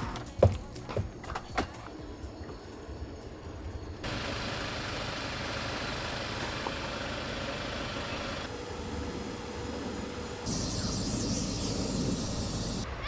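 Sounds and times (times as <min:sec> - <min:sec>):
van engine running: 0:00.0 - 0:12.8
road and wind noise: 0:00.0 - 0:13.0.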